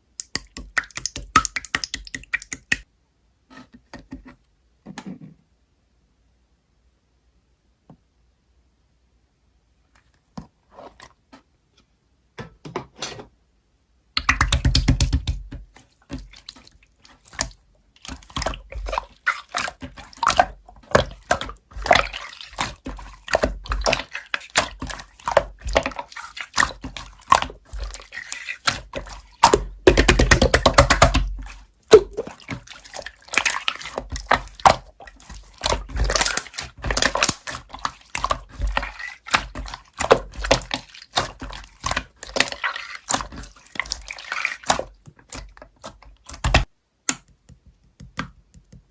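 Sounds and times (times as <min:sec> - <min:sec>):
wet clicks and crackles: 0:00.0 - 0:02.9, 0:14.2 - 0:48.8.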